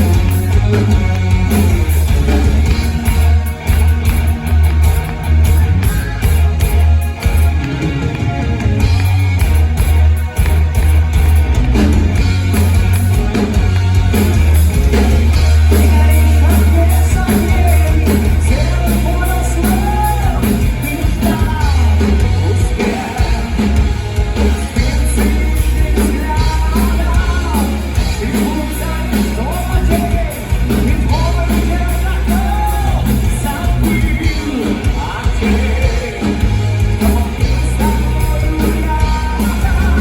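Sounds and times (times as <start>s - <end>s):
live rock band playing: 0.0s - 40.0s
person singing: 14.2s - 40.0s.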